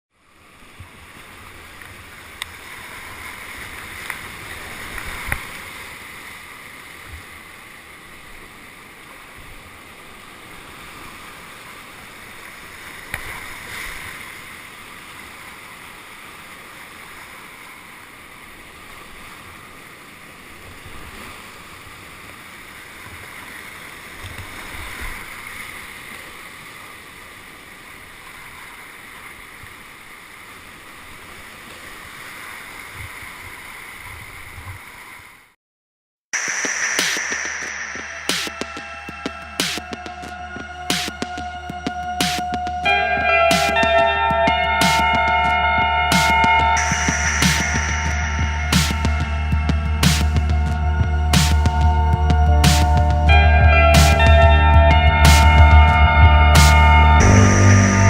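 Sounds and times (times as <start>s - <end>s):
low thumps: 37.0s - 58.0s.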